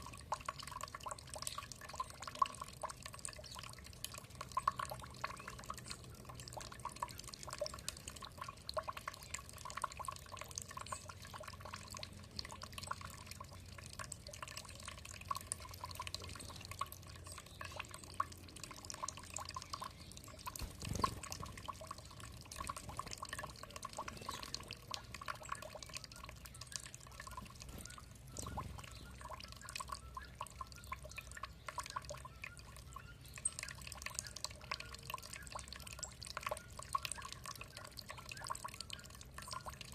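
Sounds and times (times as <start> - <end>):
water dripping and trickling: 0.0 - 39.9.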